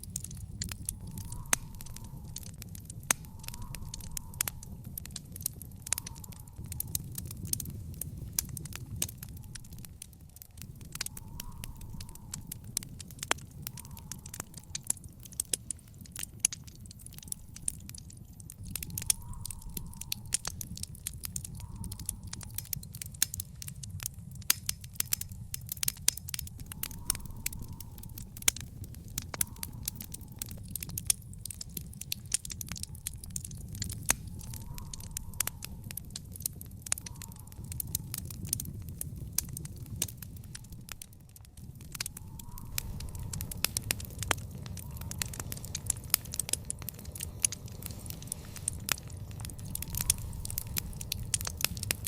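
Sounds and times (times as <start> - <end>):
low rumble of burning: 0.0 - 52.0
sharp pops and snaps: 0.0 - 52.0
wood fire crackling: 0.0 - 52.0.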